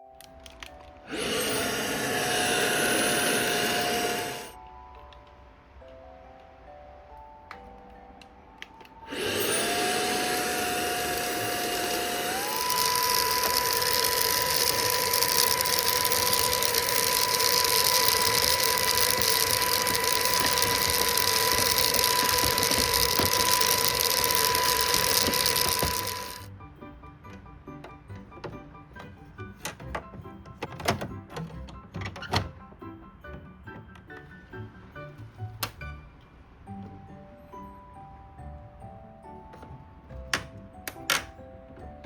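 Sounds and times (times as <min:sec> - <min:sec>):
electric motor rushing and whining: 0:01.1 - 0:04.6, 0:09.1 - 0:26.5.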